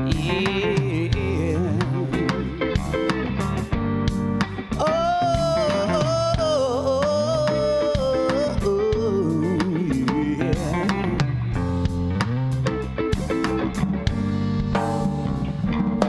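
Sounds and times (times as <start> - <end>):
bass: 0.0 - 16.0
drums: 0.0 - 16.0
lead guitar line with vibrato: 0.0 - 16.0.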